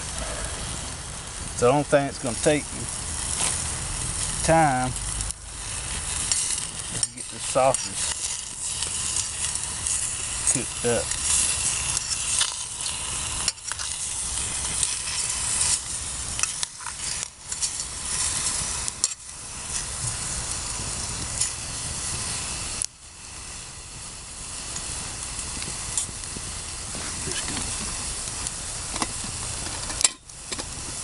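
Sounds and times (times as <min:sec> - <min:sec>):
sausages sizzling in a pot: 0:00.0 - 0:31.0.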